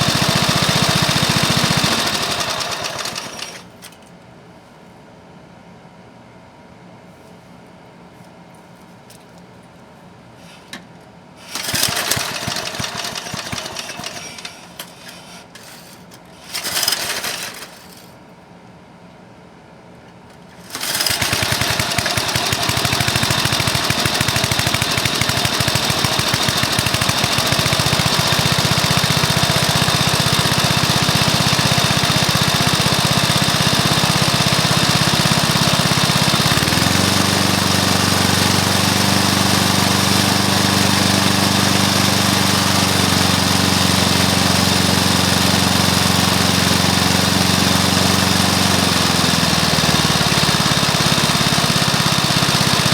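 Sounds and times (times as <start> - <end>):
lawn mower engine running: 0.0 - 4.0, 11.4 - 15.0, 16.4 - 18.1, 20.5 - 52.9.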